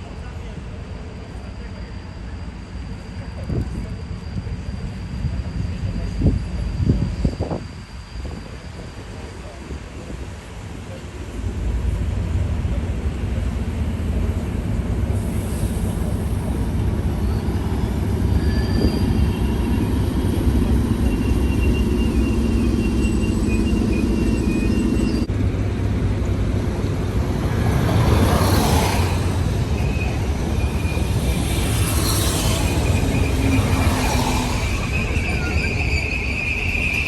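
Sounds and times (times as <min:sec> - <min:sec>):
train rumbling past: 0:00.0 - 0:37.0
high squeals: 0:15.2 - 0:25.3, 0:27.6 - 0:37.0.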